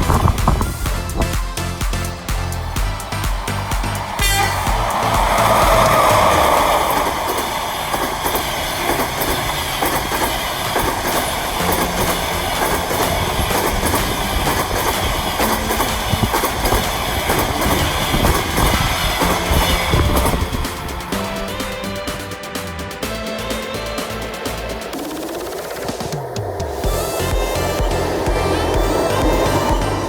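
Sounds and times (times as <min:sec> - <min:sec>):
train wheels clacking on rails: 0:00.0 - 0:22.8.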